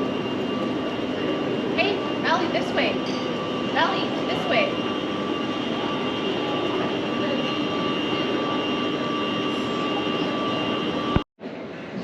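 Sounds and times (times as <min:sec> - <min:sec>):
humming tones: 0:00.0 - 0:11.3
jet airliner noise: 0:00.0 - 0:12.0.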